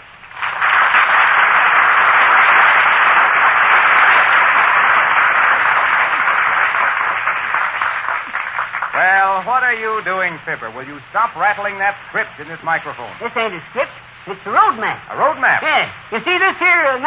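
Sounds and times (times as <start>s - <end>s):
audience applause: 0.2s - 9.6s.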